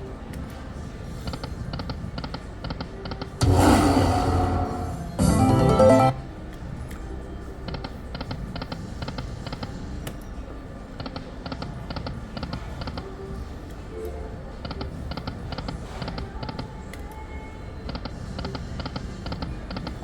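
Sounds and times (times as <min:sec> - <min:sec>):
slot machine reels clicking: 0:05.2 - 0:06.2.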